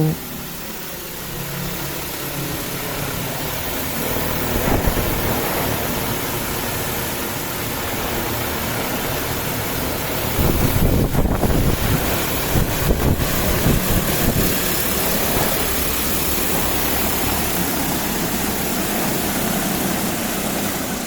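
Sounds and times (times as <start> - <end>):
drone rotors whirring: 0.0 - 0.6.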